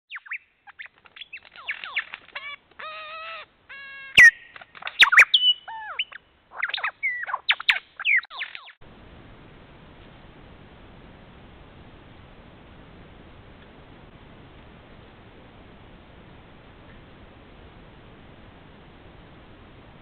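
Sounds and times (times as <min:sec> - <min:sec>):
birds calling: 0:00.1 - 0:08.8
faint hiss: 0:08.8 - 0:20.0.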